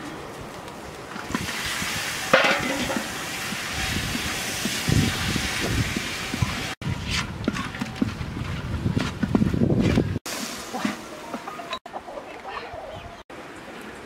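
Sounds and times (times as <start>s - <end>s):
fish sizzling in a wok: 1.3s - 6.8s, 10.3s - 11.1s
wooden spatula scraping wok: 2.2s - 11.6s.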